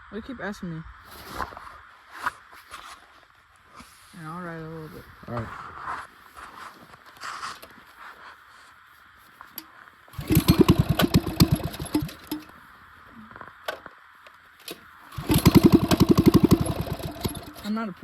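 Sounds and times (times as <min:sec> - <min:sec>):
small engine catching and putting: 0:09.6 - 0:12.6, 0:14.6 - 0:17.7.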